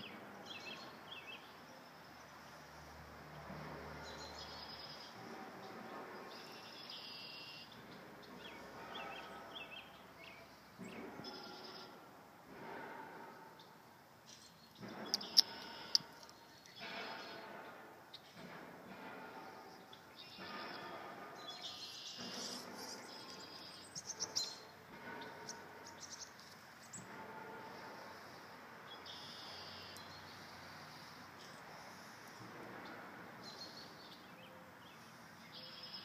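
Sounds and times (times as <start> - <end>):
outdoor background noise: 0.0 - 36.0.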